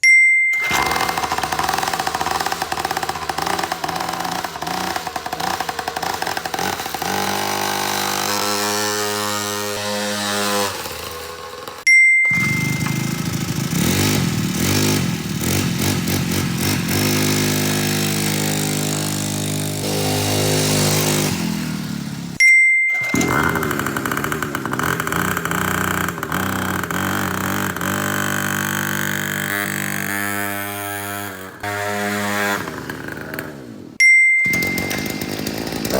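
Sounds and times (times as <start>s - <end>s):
short high ding: 0.0s - 1.0s, 11.9s - 13.2s, 22.4s - 23.7s, 34.0s - 35.5s
small petrol engines running: 0.5s - 35.9s.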